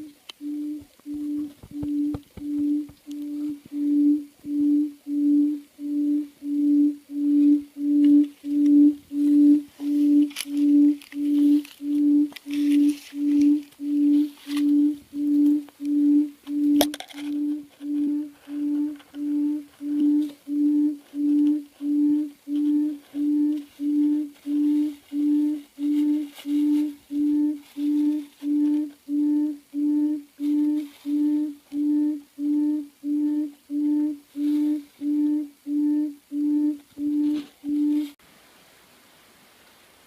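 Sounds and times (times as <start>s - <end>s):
recorded low hooting bird call: 0.0s - 38.2s.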